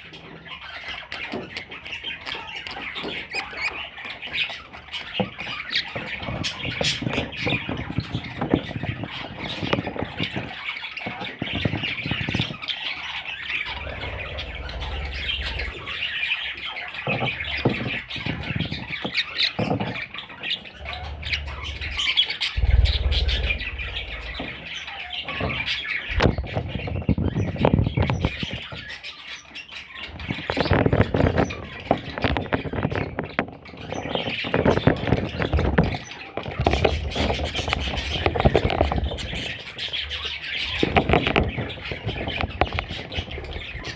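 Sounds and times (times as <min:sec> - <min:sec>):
budgerigars chattering and squawking: 0:00.0 - 0:43.9
low rumbles: 0:13.6 - 0:16.2, 0:20.6 - 0:26.9.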